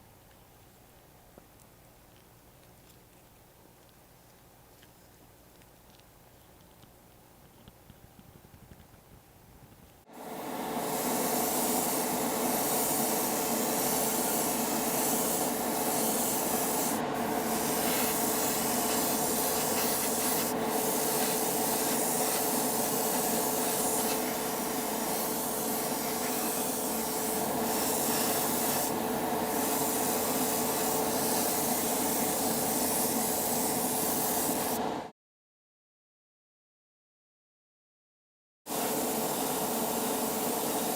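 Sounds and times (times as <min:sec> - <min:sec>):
sanding on metal: 0:11.0 - 0:34.6.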